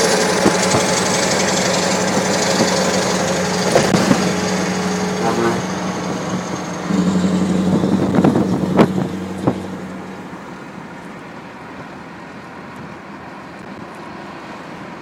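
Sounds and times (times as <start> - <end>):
exhaust cracks: 0.0 - 10.4
truck engine rumbling: 0.0 - 15.0.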